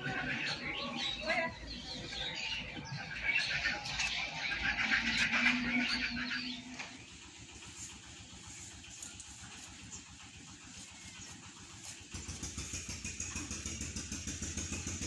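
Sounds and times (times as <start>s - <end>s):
birds chirping: 0.0s - 15.0s
small engine running: 0.0s - 15.0s.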